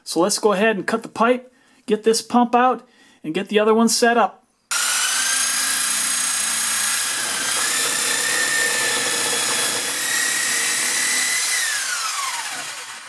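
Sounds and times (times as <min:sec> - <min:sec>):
power saw cutting pipe: 0:04.7 - 0:13.0.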